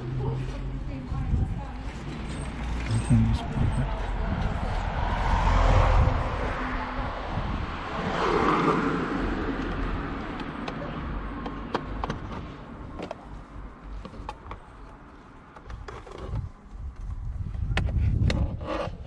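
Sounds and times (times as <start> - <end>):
vehicle passing: 0.0 - 11.6
clicks and taps of car parts: 11.4 - 13.3.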